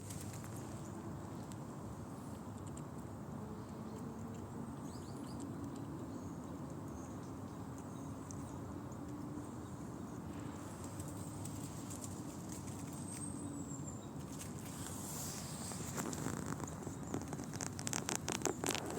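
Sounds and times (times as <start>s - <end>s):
light clicks and scratches: 2.2s - 7.0s, 10.7s - 13.4s, 14.2s - 18.9s.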